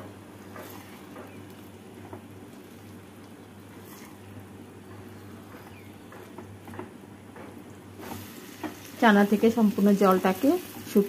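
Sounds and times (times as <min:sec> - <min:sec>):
steady low hum: 0:00.0 - 0:11.0
curry sizzling and bubbling in a pan: 0:00.2 - 0:05.6, 0:07.8 - 0:11.0
spatula stirring: 0:00.4 - 0:09.0.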